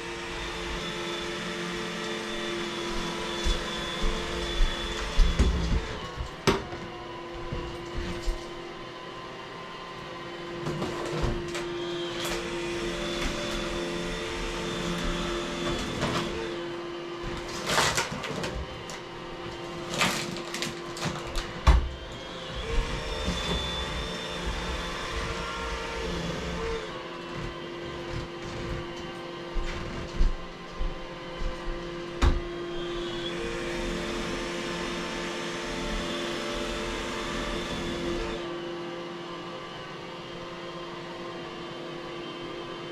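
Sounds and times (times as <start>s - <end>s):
vacuum cleaner motor hum: 0.0s - 42.9s.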